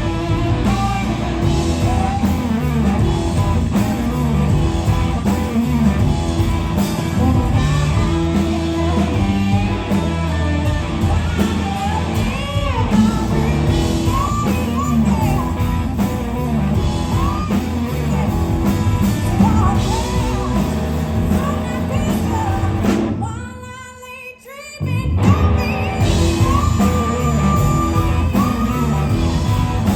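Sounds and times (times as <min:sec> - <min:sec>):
electric guitar: 0:00.0 - 0:23.5, 0:24.8 - 0:29.9
drums: 0:00.0 - 0:29.9
person singing: 0:17.1 - 0:29.9.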